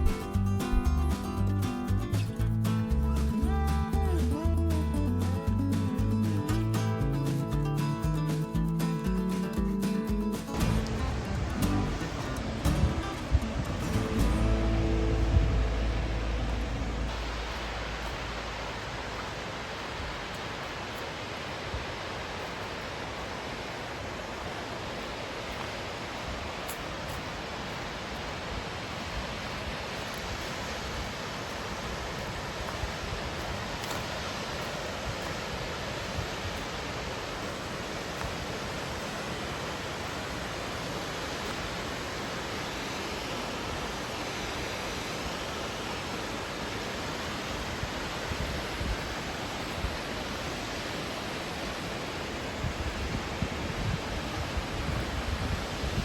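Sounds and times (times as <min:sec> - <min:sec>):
flowing water rushing: 0:00.0 - 0:56.0
low thumps: 0:10.1 - 0:19.2.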